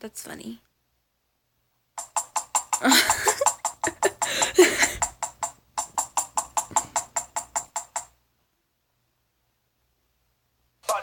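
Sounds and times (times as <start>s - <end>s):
bird tapping: 2.0s - 8.2s.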